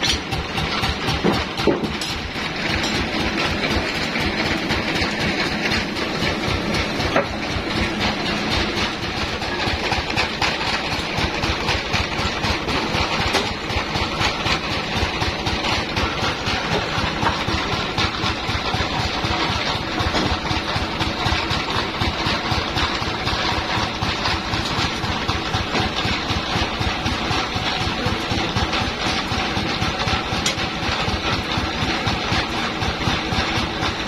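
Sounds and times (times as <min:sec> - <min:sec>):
sawmill engine throbbing: 0:00.0 - 0:34.0.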